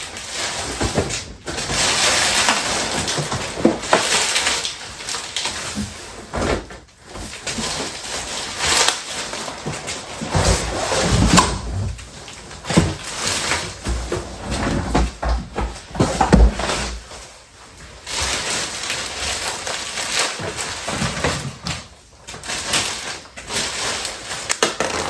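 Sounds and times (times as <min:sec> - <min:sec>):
cardboard rustling and crinkling: 0:00.0 - 0:25.0
heavy knocks and thumps: 0:10.3 - 0:17.1.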